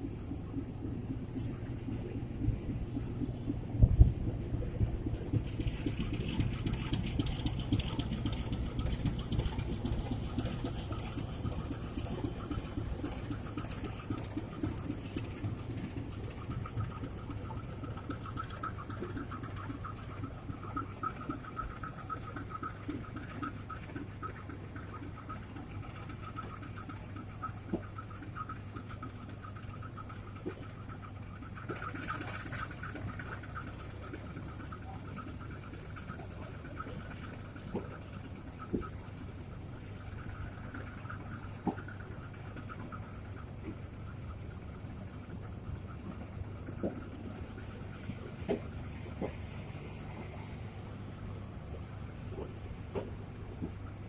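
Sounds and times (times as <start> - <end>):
diesel engine drone: 0.0 - 54.0
train wheels on track: 1.2 - 21.6.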